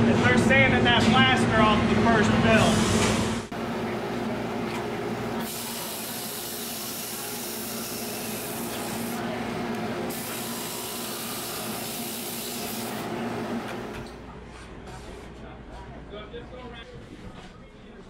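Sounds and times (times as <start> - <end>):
sanding machine hissing: 5.4 - 9.2, 10.1 - 13.1.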